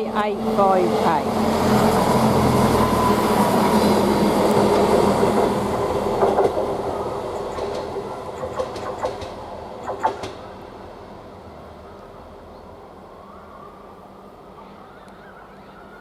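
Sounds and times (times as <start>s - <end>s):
diesel train rumble: 0.0s - 13.2s
wheels clicking over rail joints: 4.4s - 10.5s.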